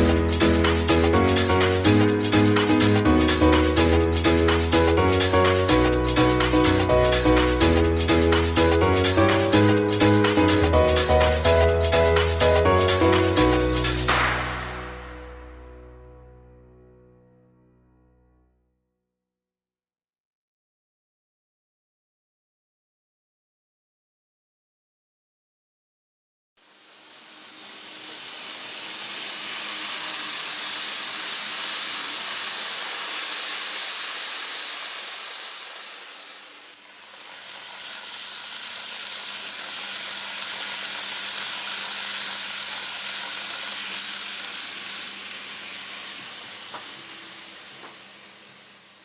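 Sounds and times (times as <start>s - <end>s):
faint motor hum: 26.6s - 49.0s
model train wheels rushing on rails: 26.6s - 49.0s.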